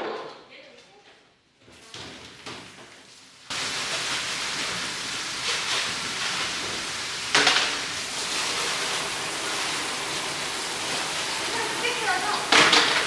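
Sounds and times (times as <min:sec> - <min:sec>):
water spraying hard: 0:03.5 - 0:13.0.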